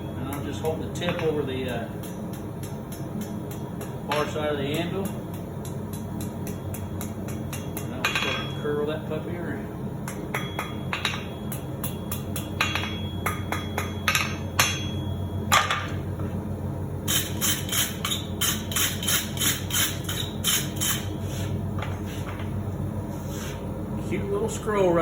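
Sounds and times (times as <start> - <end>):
hammer striking hot steel on anvil: 0.0 - 8.6, 10.0 - 16.0, 17.1 - 21.1
steady low hum: 0.0 - 25.0.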